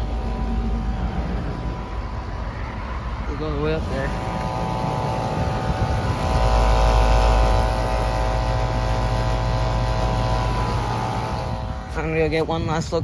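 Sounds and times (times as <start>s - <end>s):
air conditioner units humming: 0.0s - 13.0s
fan whoosh: 3.5s - 13.0s.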